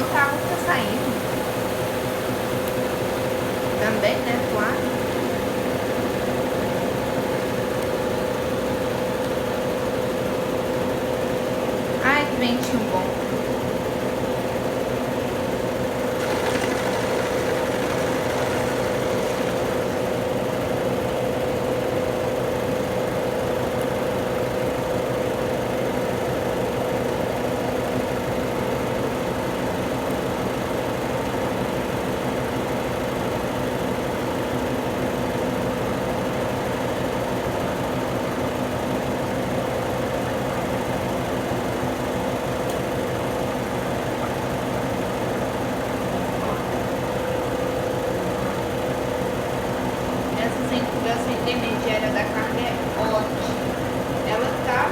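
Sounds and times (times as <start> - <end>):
washing machine drum spinning: 0.0 - 24.5.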